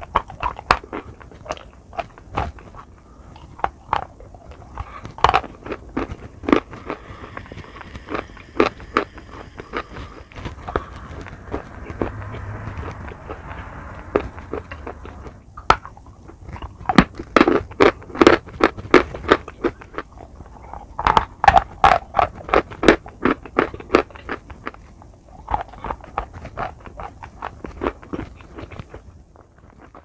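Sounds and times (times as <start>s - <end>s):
wet chewing and crunching: 0.0s - 12.7s, 15.6s - 30.0s.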